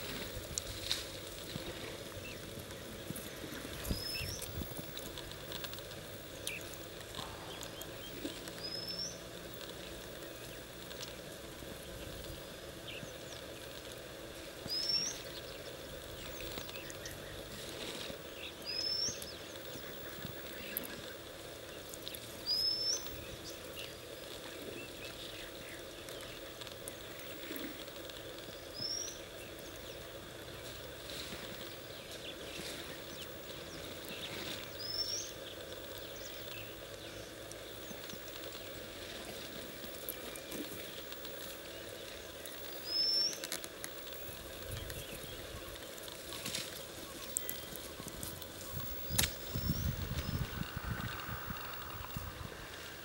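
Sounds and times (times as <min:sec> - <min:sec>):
outdoor background noise: 0:00.0 - 0:53.0.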